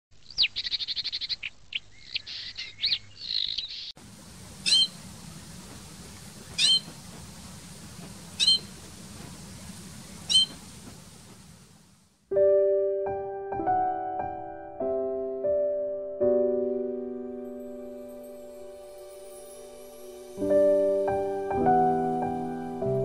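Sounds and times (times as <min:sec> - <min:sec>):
songbird trilling calls: 0:00.2 - 0:03.9, 0:04.6 - 0:05.0, 0:06.4 - 0:07.0, 0:08.3 - 0:08.8, 0:10.0 - 0:10.7
steady hiss: 0:04.0 - 0:12.3, 0:17.2 - 0:23.0
nestling short sharp calls: 0:04.6 - 0:05.0, 0:06.4 - 0:07.0, 0:08.3 - 0:08.8, 0:09.6 - 0:10.8.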